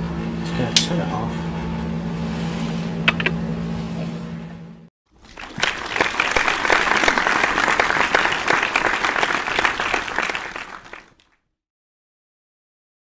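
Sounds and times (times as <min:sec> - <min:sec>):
crowd applauding: 0:05.2 - 0:11.4.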